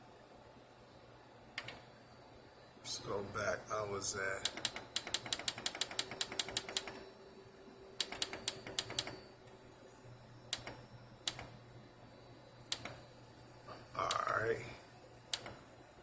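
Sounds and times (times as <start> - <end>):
steady low hum: 0.0 - 16.0
control panel buttons clicking: 4.4 - 7.0, 8.0 - 9.2, 10.5 - 11.5, 12.7 - 13.0, 15.3 - 15.6.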